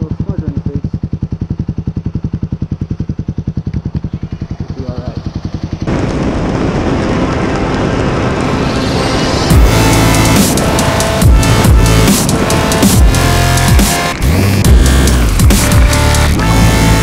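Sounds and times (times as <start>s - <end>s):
motorcycle engine idling: 0.0s - 17.0s
wind and road noise: 0.0s - 17.0s
electronic music: 7.4s - 17.0s.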